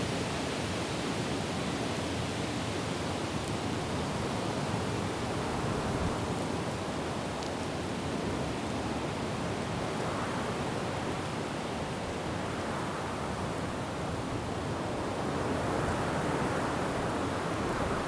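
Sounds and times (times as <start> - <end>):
wind through forest trees: 0.0 - 18.0.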